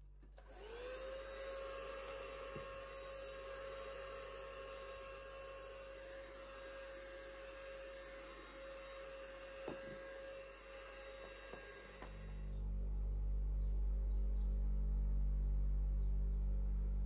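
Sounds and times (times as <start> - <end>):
small electric motor whirring: 0.4 - 12.6.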